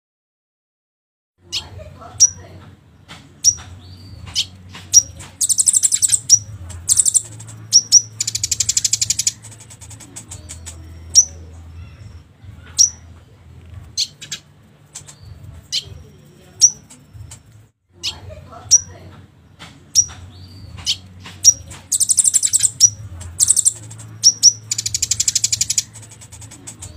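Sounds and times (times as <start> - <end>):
bird sharp high chips: 4.4 - 11.4, 20.9 - 26.9
bird buzzing trills: 5.4 - 7.2, 21.9 - 26.9.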